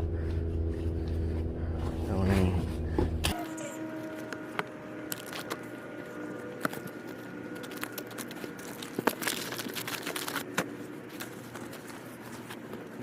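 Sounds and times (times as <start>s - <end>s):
faint steady hum: 0.0s - 13.0s
rustling: 6.6s - 13.0s.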